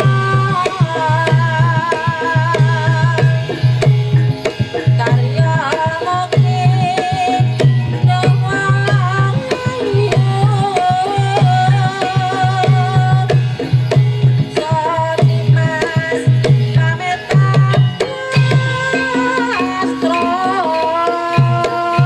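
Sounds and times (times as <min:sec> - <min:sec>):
kendang drums beating: 0:00.0 - 0:22.0
wavering gamelan melody: 0:00.0 - 0:22.0
low gamelan tone: 0:17.4 - 0:22.0.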